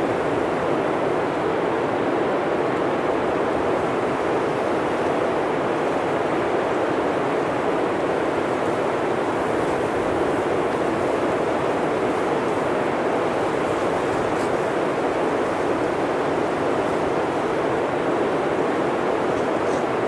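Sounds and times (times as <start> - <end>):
blizzard wind blowing: 0.0 - 20.0.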